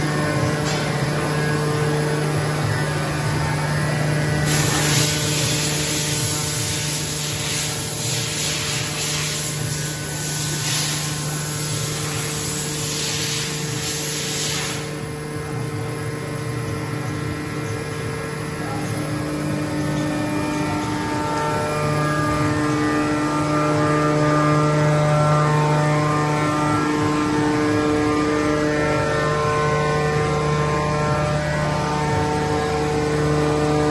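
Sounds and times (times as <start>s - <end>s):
high machine whine: 0.0s - 33.9s
machine tools humming: 0.0s - 33.9s
machine hiss: 4.2s - 15.0s.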